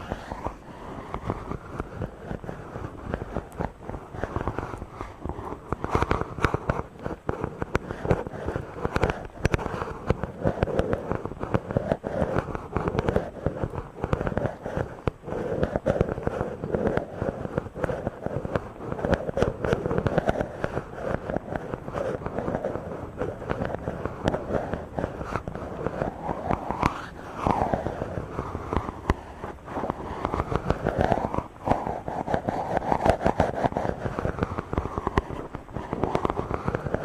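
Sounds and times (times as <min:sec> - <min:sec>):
rubbing on microphone: 0:00.0 - 0:37.0.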